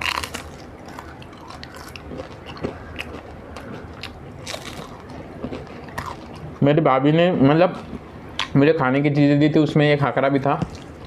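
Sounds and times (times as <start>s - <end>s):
chewing crisp flatbread: 0.0s - 6.5s.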